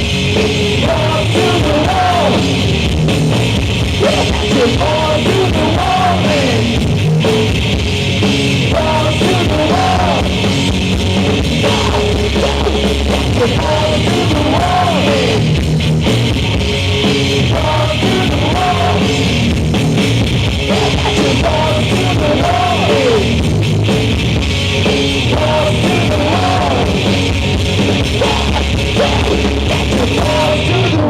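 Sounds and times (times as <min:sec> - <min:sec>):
distorted guitars: 0:00.0 - 0:31.0
drums: 0:00.0 - 0:31.0
person singing: 0:00.4 - 0:02.6, 0:04.0 - 0:06.8, 0:08.6 - 0:10.6, 0:11.5 - 0:15.6, 0:17.4 - 0:19.4, 0:20.7 - 0:23.4, 0:25.2 - 0:27.3, 0:28.0 - 0:31.0.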